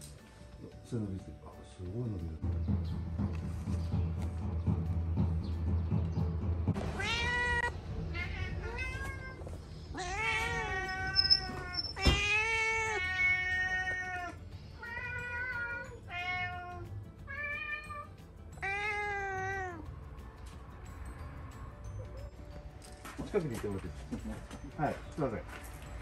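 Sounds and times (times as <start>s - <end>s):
cats meowing: 6.8s - 19.9s.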